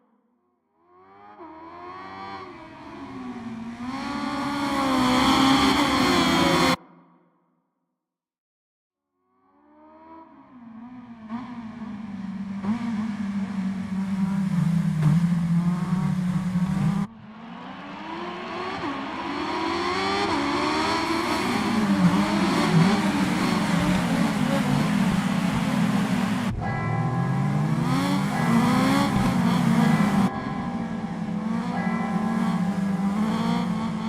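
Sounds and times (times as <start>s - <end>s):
motorcycle engine revving hard: 1.7s - 6.8s, 11.1s - 34.0s.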